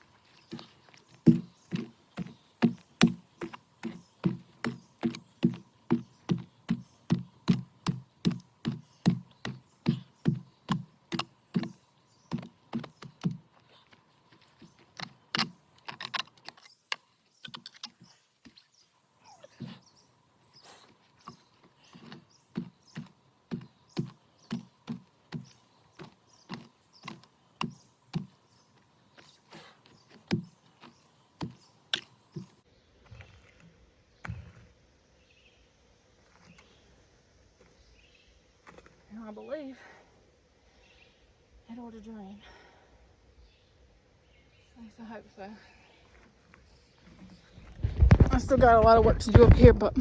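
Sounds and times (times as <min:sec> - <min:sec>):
hoe chopping into wet soil: 0:00.4 - 0:13.6, 0:14.6 - 0:16.6, 0:20.7 - 0:32.6.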